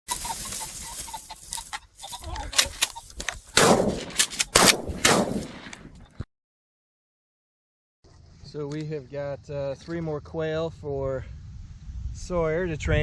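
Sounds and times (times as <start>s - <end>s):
gunshots with echo: 3.6s - 5.8s.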